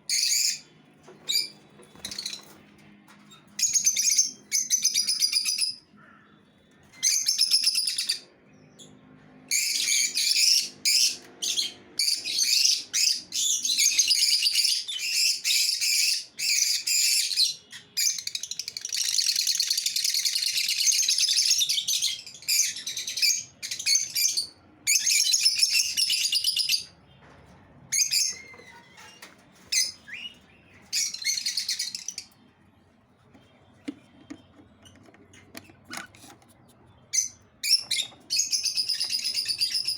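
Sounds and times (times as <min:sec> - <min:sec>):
lovebirds chattering: 0:25.0 - 0:39.9.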